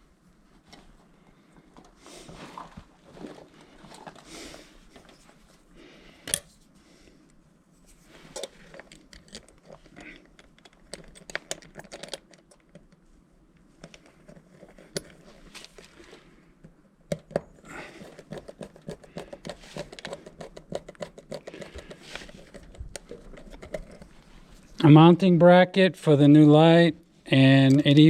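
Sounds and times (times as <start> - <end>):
hands rustling packaging: 17.6 - 24.8.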